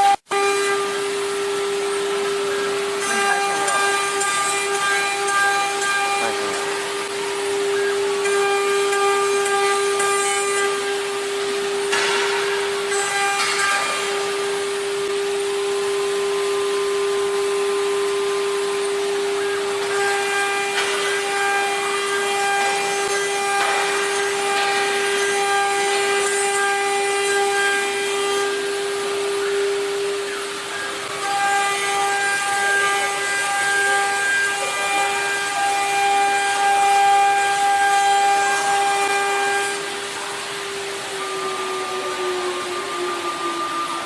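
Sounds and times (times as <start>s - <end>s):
router spindle high whine: 0.0s - 44.0s
router bit rasping into wood: 2.5s - 10.9s.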